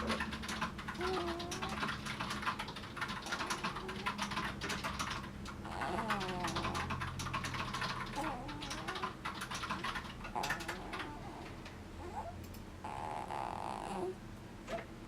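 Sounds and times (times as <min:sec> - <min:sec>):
clicking and crackling noise: 0:00.0 - 0:11.8.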